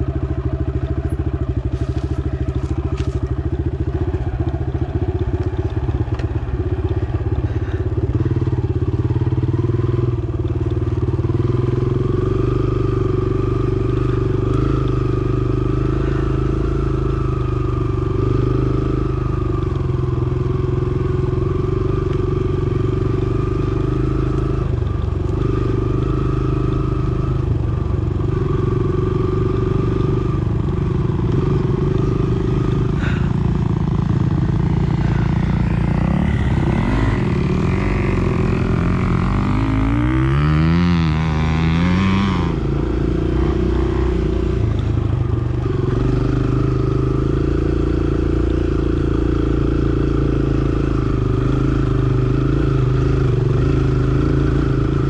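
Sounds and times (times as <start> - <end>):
dirt bike engine revving: 0.0 - 10.2, 10.8 - 55.0.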